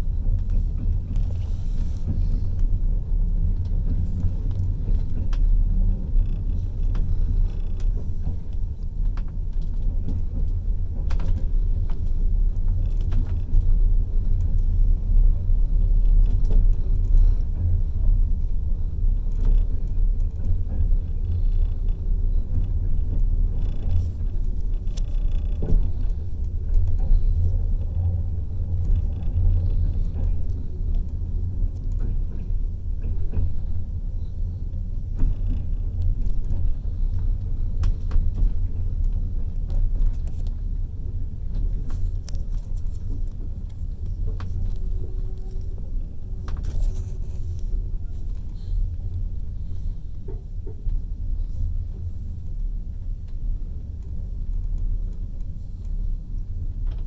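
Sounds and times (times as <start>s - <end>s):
train running low rumble: 0.0s - 57.0s
light clicks and knocks: 15.4s - 40.8s, 41.4s - 57.0s.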